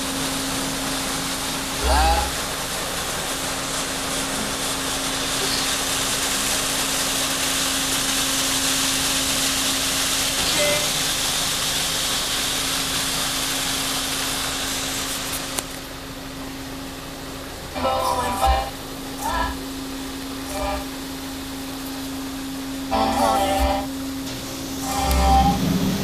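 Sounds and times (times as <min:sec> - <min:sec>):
high-pressure water spray hissing: 0:00.0 - 0:26.0
faint hum: 0:17.4 - 0:26.0.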